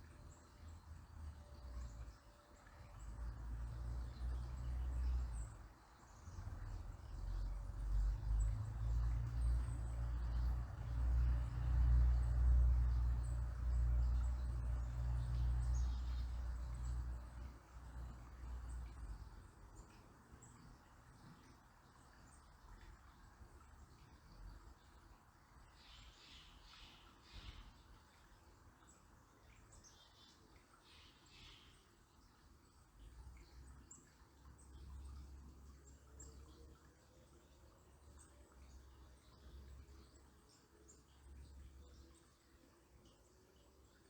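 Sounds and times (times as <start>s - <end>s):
low steady rumble: 0.0s - 20.6s
faint birds chirping: 0.0s - 44.0s.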